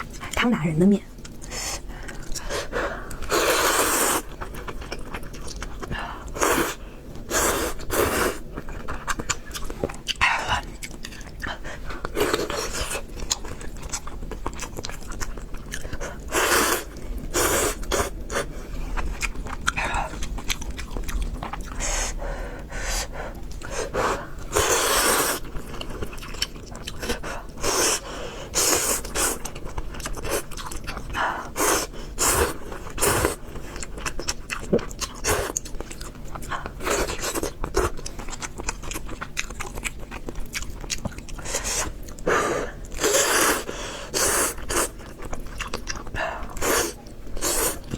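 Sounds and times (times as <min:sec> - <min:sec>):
noisy slurping of noodles: 0:03.3 - 0:04.3, 0:06.4 - 0:08.4, 0:16.3 - 0:18.5, 0:23.8 - 0:25.5, 0:42.6 - 0:45.0, 0:46.6 - 0:47.9
wet chewing and biting: 0:07.7 - 0:21.9, 0:24.5 - 0:27.6, 0:32.4 - 0:47.9.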